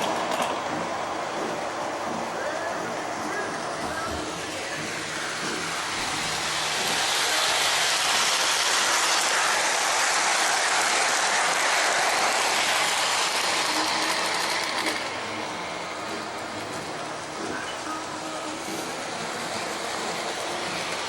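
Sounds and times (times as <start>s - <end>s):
model train wheels clattering on rail: 0.0s - 21.0s.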